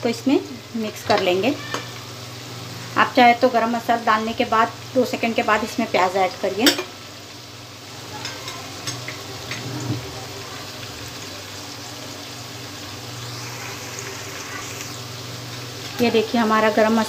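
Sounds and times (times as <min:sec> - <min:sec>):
onions sizzling in hot oil: 0:00.0 - 0:17.0
small crackles: 0:13.1 - 0:16.0.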